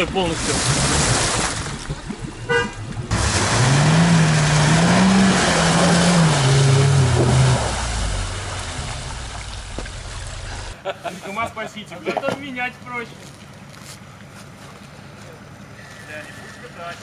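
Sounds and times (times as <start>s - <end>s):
wheels churning muddy water: 0.0s - 10.8s
car engine revving: 3.0s - 10.8s.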